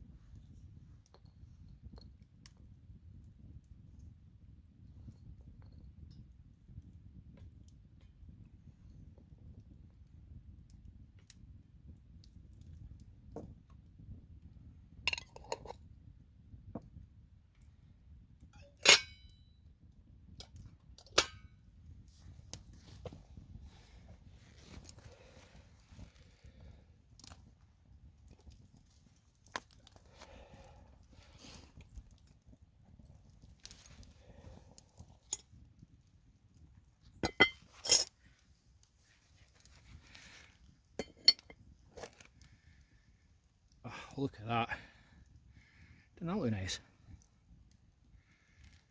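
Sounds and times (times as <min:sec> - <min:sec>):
metallic clinks of cookware: 0:15.1 - 0:15.8, 0:18.6 - 0:19.3, 0:21.0 - 0:21.4, 0:37.2 - 0:38.1, 0:41.0 - 0:41.5
sharp metal clanks: 0:37.2 - 0:38.1
handling noises with small knocks: 0:37.2 - 0:42.5.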